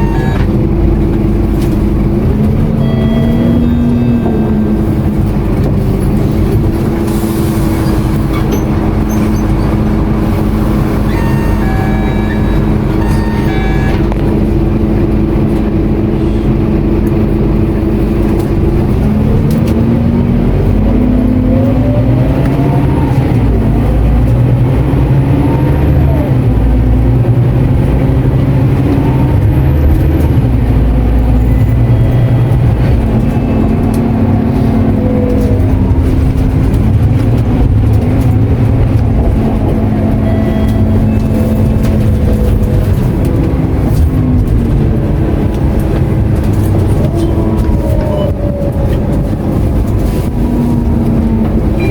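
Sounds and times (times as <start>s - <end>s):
bus diesel engine: 0.0s - 51.9s
low road rumble: 0.0s - 51.9s.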